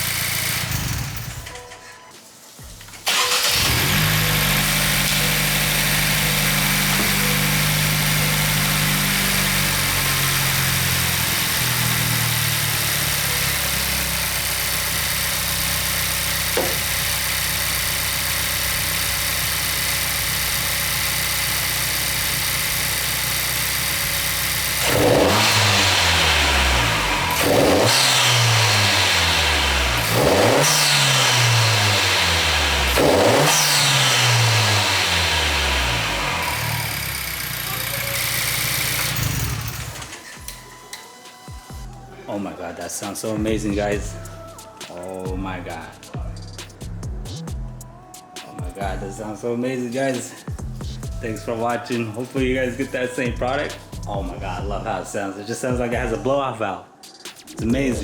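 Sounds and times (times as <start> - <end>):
engine revving with intake whoosh: 0.0 - 1.5, 3.0 - 40.9, 49.0 - 55.0
car engine idling: 0.0 - 1.7, 2.8 - 41.0, 43.4 - 44.7, 50.6 - 55.1.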